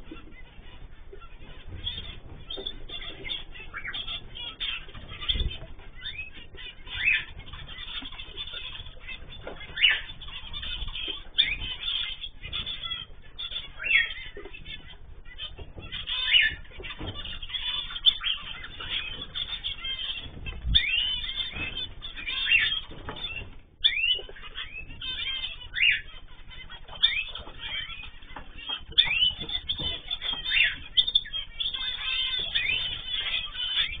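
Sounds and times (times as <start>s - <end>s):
cage birds chirping: 0.0s - 34.0s.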